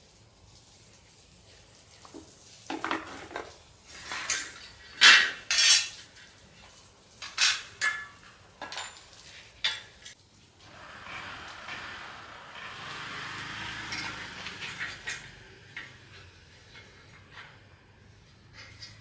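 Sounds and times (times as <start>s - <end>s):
metal tools clinking and scraping: 2.8s - 10.2s, 13.9s - 19.0s.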